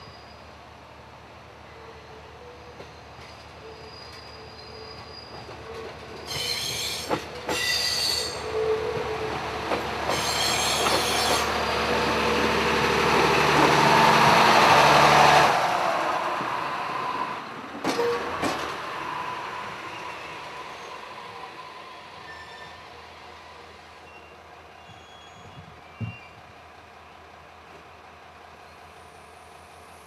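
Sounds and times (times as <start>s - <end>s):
railcar running noise: 0.0s - 30.0s
high-pitched wheel squeals: 2.8s - 8.5s, 10.1s - 11.8s, 22.2s - 22.9s, 24.0s - 26.4s.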